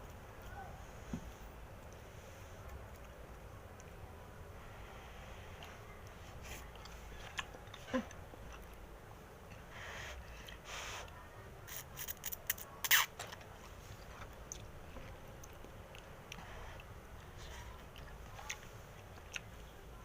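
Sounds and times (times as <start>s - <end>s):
chewing and mouth sounds: 5.5s - 9.6s, 11.8s - 19.9s.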